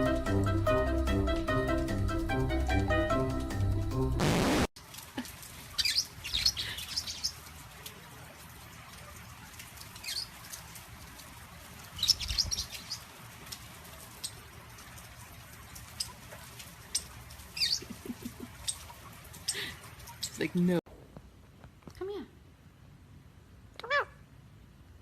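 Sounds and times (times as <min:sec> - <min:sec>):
parrots chirping: 0:05.8 - 0:07.4, 0:10.0 - 0:10.3, 0:12.0 - 0:13.1, 0:16.9 - 0:20.4.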